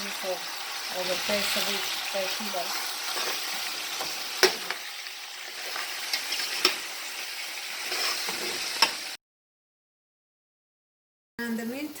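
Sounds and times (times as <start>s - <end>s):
pork sizzling in hot oil: 0.0s - 9.2s.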